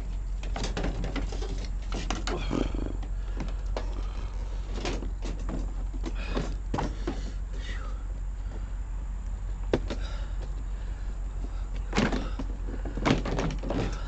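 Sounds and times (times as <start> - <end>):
knocks and clunks on car parts: 4.7 - 7.4, 9.6 - 10.6, 11.8 - 14.0.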